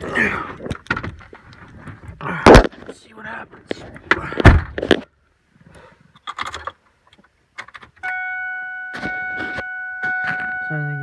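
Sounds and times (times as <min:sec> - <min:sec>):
dashboard warning chime: 0:08.0 - 0:11.0.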